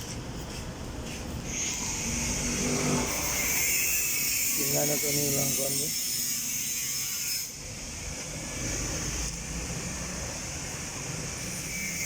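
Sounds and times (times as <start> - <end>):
hiss: 10.7 - 12.0.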